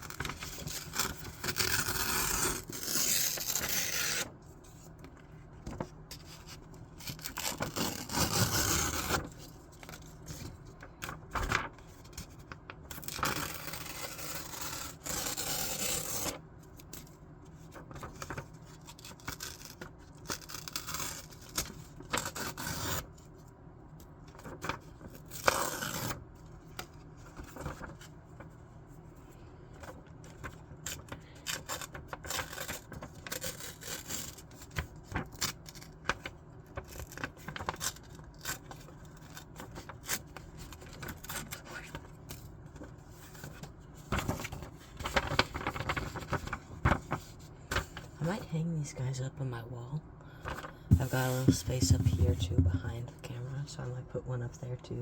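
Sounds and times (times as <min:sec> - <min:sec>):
scissors cutting paper: 0:00.5 - 0:04.3, 0:07.2 - 0:09.3, 0:13.0 - 0:16.4
paper rustling: 0:17.6 - 0:20.2, 0:26.9 - 0:28.5, 0:29.8 - 0:48.2, 0:50.4 - 0:53.0.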